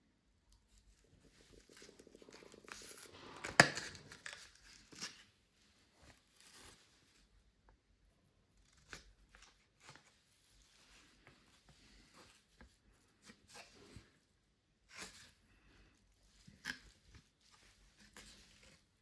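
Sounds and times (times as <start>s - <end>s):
packaging ripping: 2.4s - 5.2s.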